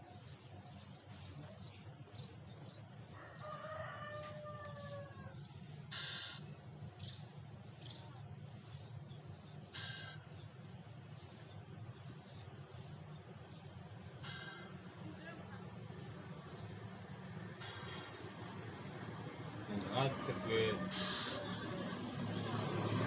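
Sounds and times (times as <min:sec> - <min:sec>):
owl calling: 0:04.8 - 0:06.6, 0:09.7 - 0:10.4, 0:14.2 - 0:14.9, 0:17.6 - 0:18.2, 0:20.1 - 0:21.6.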